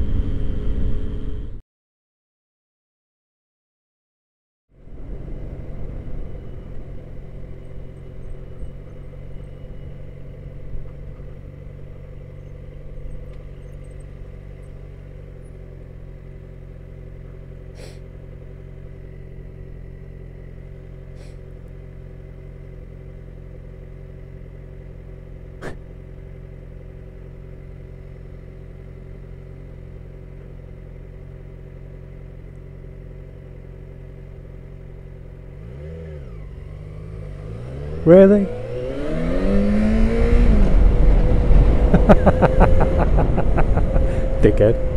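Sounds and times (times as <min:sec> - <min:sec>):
motorcycle engine idling: 0:04.9 - 0:37.5.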